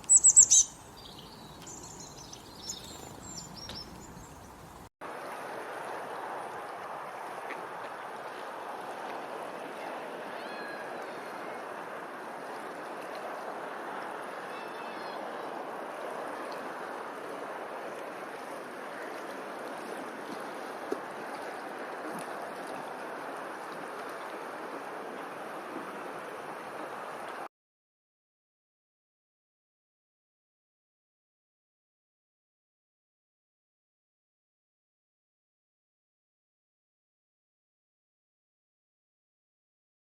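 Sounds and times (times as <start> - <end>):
faint high chirps: 0.0 - 4.5
flowing water rushing: 0.0 - 27.5.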